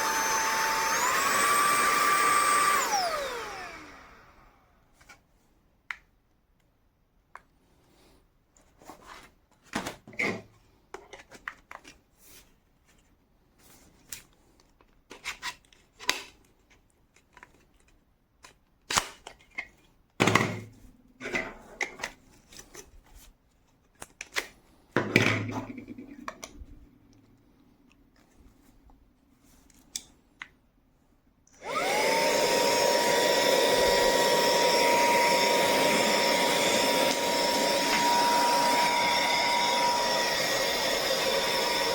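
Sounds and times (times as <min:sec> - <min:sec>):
handheld vacuum cleaner whining: 0:00.0 - 0:04.8, 0:31.6 - 0:41.9.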